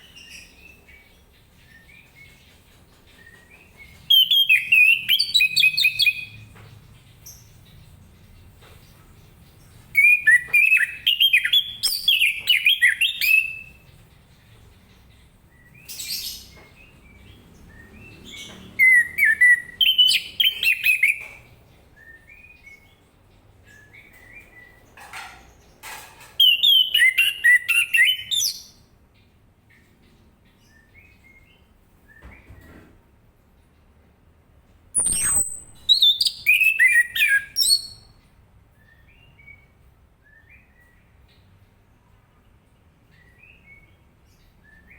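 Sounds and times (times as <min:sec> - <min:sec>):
thrush singing whistled phrases: 0:35.0 - 0:38.0.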